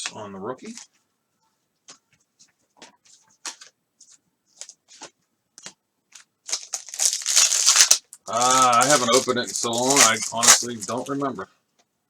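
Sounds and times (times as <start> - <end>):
cards ticking and rustling: 3.1 - 11.2.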